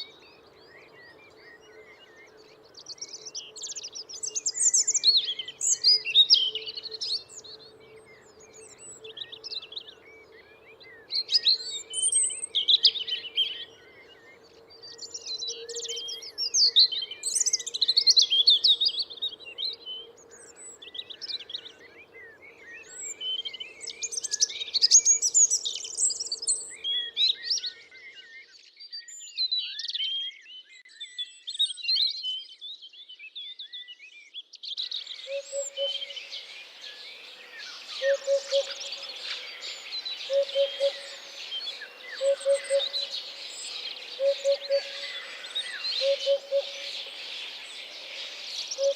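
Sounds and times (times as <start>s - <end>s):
birds singing: 0.0s - 48.9s
background hiss: 35.4s - 48.9s.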